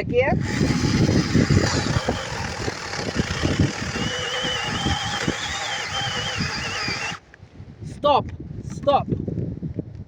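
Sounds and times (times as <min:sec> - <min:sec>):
electric chainsaw cutting brush: 0:00.4 - 0:07.2.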